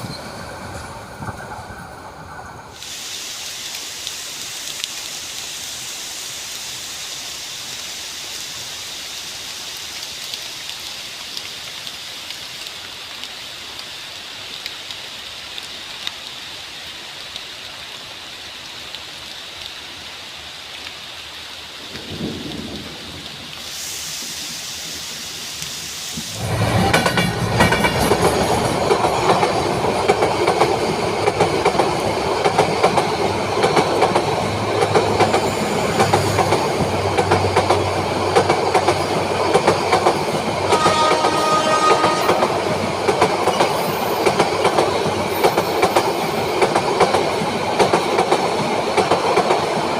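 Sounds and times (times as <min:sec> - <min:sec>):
steady rain hiss: 0:00.2 - 0:49.9
train wheels clickety-clack: 0:26.2 - 0:49.9.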